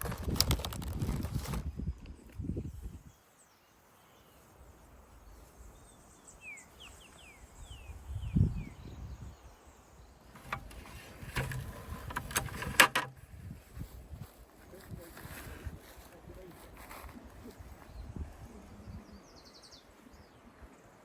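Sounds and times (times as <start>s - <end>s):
wind rumble on microphone: 0.0s - 3.2s, 7.3s - 9.6s, 10.4s - 19.5s
rustling: 10.3s - 17.8s.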